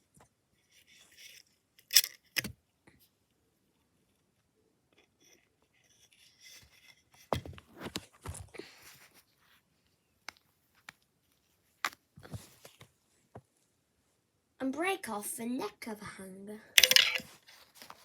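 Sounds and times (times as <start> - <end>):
coat hanger knocks and clicks: 16.8 - 17.4
coat hanger rustling: 16.8 - 18.0.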